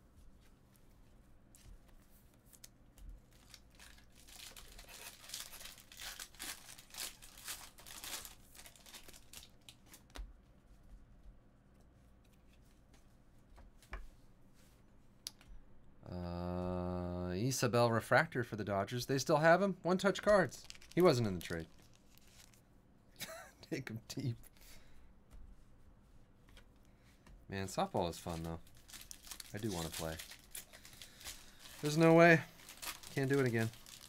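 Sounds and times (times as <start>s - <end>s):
foil wrappers crinkling: 2.5s - 10.1s, 20.3s - 22.6s, 28.1s - 34.0s.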